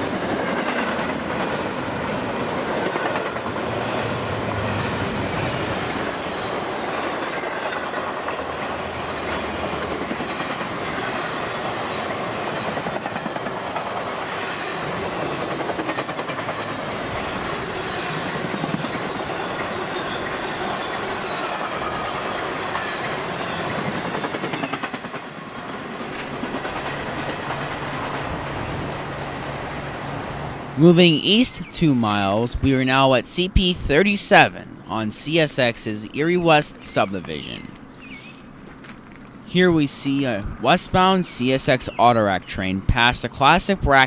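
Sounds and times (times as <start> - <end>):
freight train wheels clicking over rail joints: 0.0 - 29.2.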